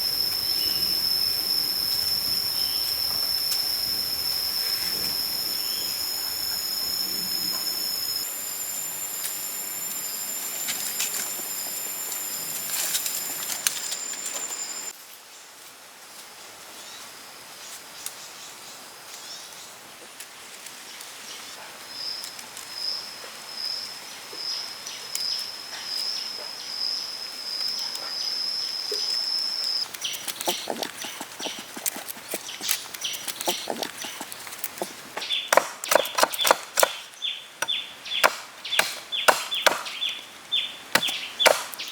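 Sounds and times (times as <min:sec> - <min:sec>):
insects shrilling: 0:00.0 - 0:14.9, 0:28.4 - 0:41.9
faint clicks and scrapes: 0:29.9 - 0:35.2.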